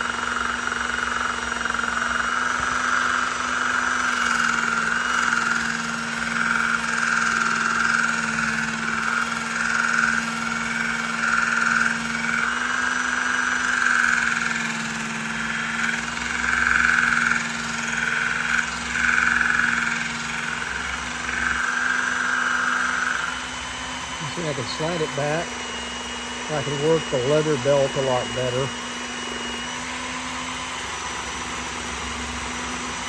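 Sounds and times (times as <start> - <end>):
belt sharpener grinding knife blade: 1.9 - 23.4.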